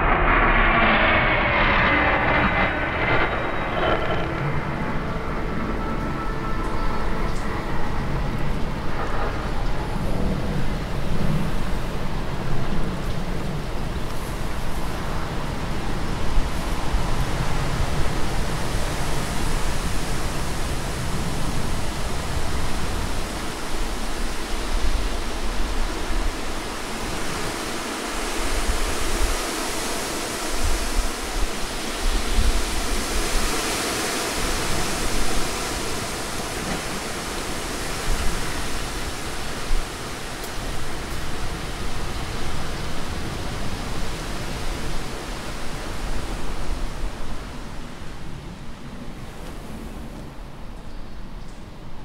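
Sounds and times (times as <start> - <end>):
sea surf rushing: 0.0 - 0.6, 13.5 - 50.8
wind rumbling on microphone: 0.0 - 52.0.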